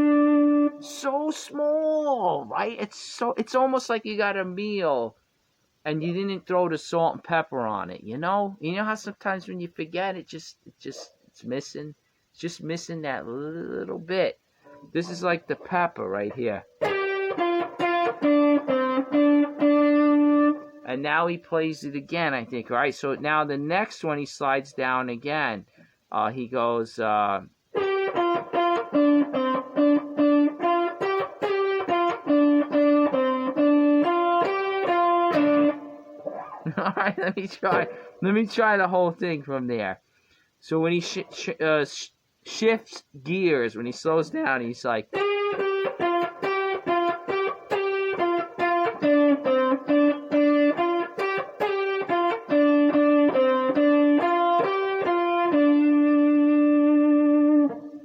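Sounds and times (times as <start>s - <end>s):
electric guitar blues phrase: 0.0s - 2.9s, 13.2s - 24.5s, 27.7s - 39.6s, 43.9s - 58.0s.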